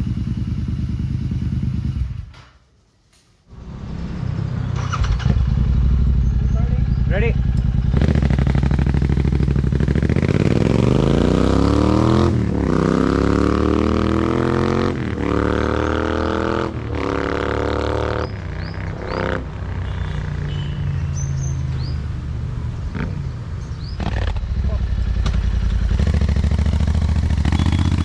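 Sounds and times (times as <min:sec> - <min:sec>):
motorcycle engine idling: 0:00.0 - 0:02.2, 0:04.8 - 0:10.2, 0:23.9 - 0:28.0
motorcycle engine revving: 0:00.0 - 0:02.3, 0:03.5 - 0:22.0, 0:22.9 - 0:28.0.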